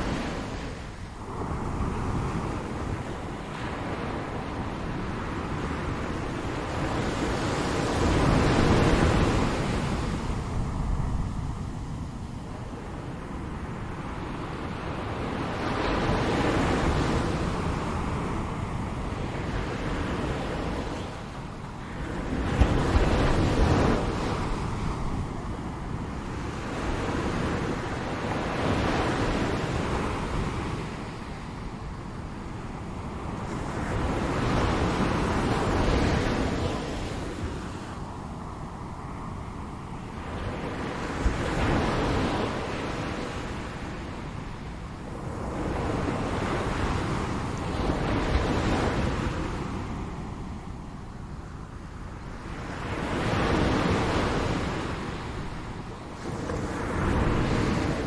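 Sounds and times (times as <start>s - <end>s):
ocean surf washing: 0.0s - 58.0s.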